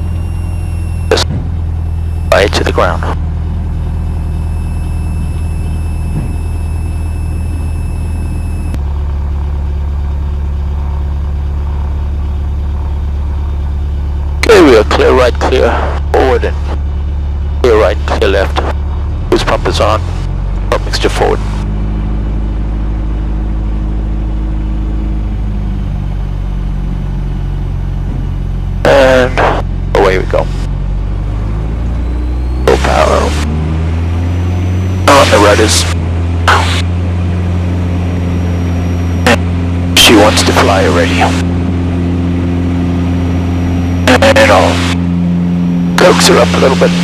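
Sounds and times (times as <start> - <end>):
piston engine running: 0.0 - 14.8, 30.4 - 47.0
high steady whine: 0.0 - 47.0.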